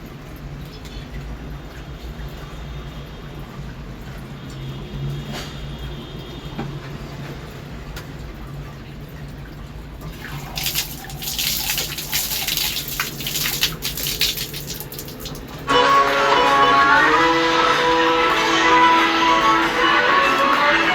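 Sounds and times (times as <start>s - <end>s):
water running and splashing: 7.4s - 15.7s.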